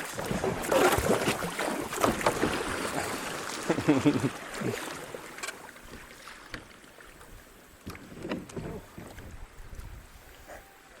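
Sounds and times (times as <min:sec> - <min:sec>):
paddles splashing in water: 0:00.0 - 0:11.0
wind noise on microphone: 0:08.0 - 0:10.6.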